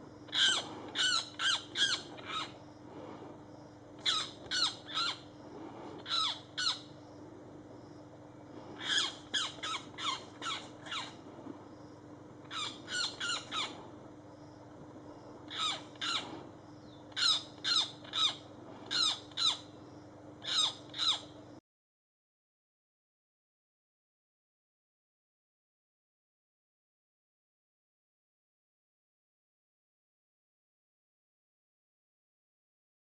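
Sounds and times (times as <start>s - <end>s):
steady low hum: 0.0s - 21.6s
bird squawking: 0.3s - 2.6s, 4.0s - 5.2s, 6.0s - 6.9s, 8.8s - 11.2s, 12.5s - 13.8s, 15.5s - 16.4s, 17.1s - 19.6s, 20.4s - 21.3s.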